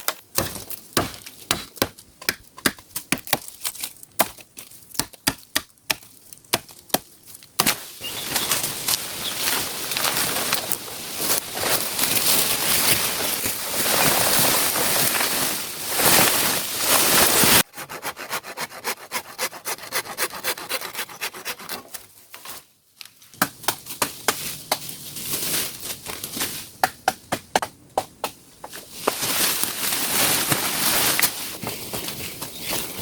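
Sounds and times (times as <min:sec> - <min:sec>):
rubbing and scraping on wood: 0:17.1 - 0:22.1.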